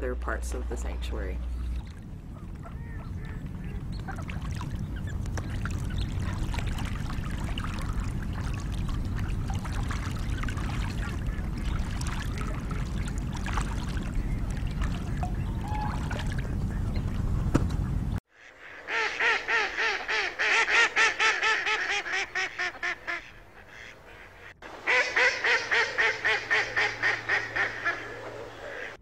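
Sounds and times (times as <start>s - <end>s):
steady low rumble: 0.0s - 18.2s
ducks calling: 0.5s - 29.0s
ducks splashing: 0.5s - 29.0s.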